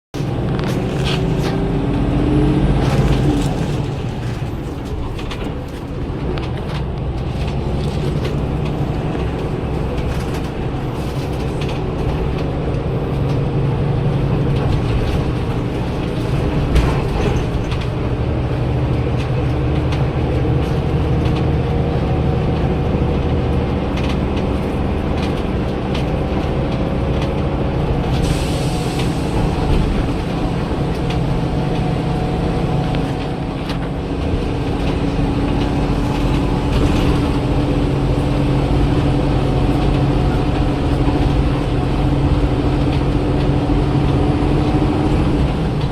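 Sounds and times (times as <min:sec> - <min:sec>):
bus diesel engine running: 0:00.1 - 0:45.9
rattles and clicks: 0:02.8 - 0:28.3, 0:29.0 - 0:45.9.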